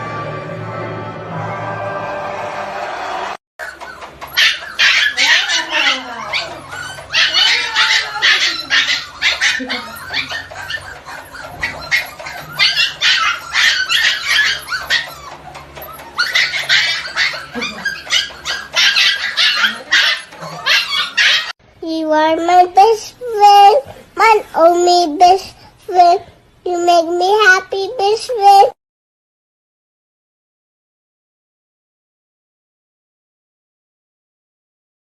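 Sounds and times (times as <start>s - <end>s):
dog whining: 3.6s - 21.6s
dog yapping: 3.6s - 21.6s.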